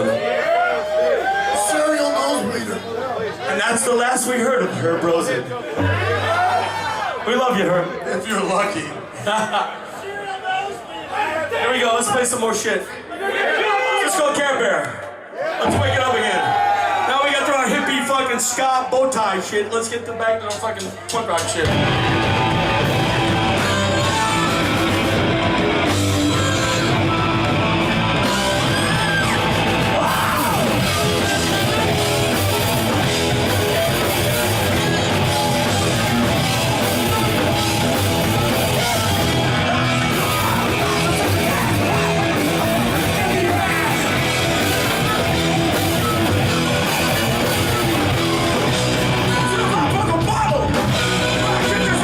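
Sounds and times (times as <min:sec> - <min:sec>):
punk rock band playing: 0:05.7 - 0:07.2, 0:20.4 - 0:52.0
distorted electric guitars: 0:20.8 - 0:52.0
person yelling vocals: 0:28.6 - 0:32.8.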